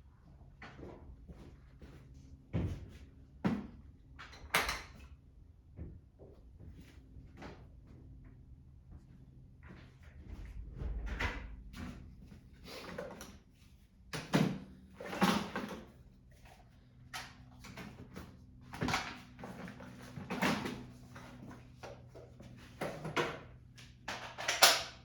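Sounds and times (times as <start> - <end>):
steady low hum: 5.3 - 15.1.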